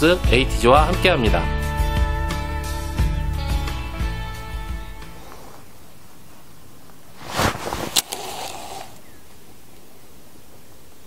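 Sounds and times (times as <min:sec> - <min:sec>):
faint outdoor background: 0:00.0 - 0:11.0
brief rustle: 0:07.1 - 0:09.1.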